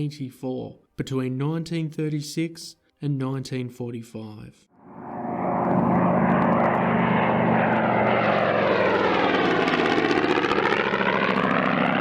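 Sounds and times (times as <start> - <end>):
propeller plane engine droning: 4.8 - 12.0.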